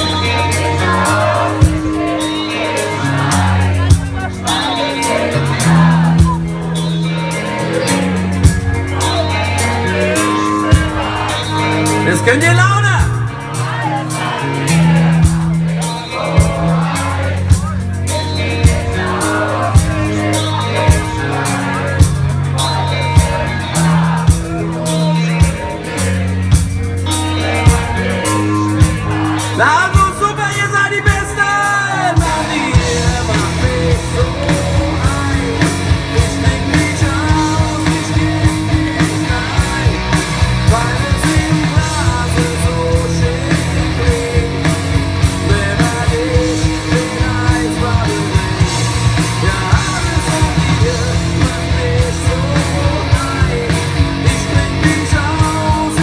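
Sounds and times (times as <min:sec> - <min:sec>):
live rock band: 0:00.0 - 0:56.0
steady drum beat: 0:00.0 - 0:56.0
person singing: 0:27.1 - 0:56.0.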